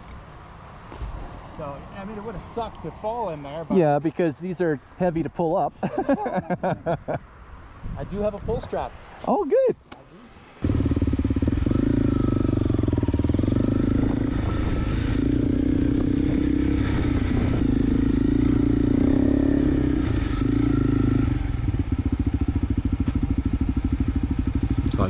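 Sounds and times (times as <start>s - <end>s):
motorcycle engine under throttle: 10.6s - 25.0s.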